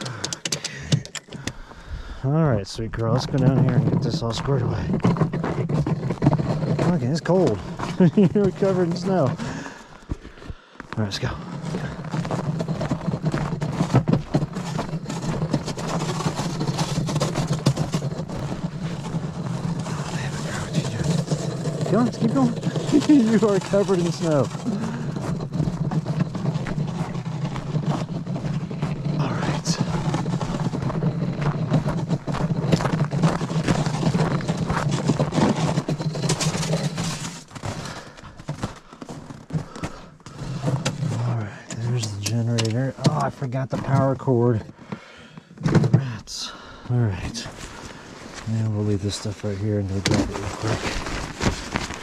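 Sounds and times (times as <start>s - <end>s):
scattered clicks and knocks: 0.0s - 1.8s, 2.8s - 46.6s, 47.4s - 52.0s
engine running steadily: 11.3s - 38.2s.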